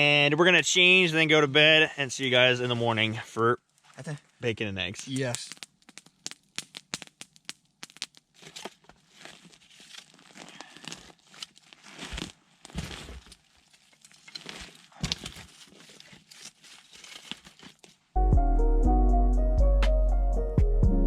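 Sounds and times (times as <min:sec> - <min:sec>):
fabric rustling and crinkling: 0:08.3 - 0:18.2.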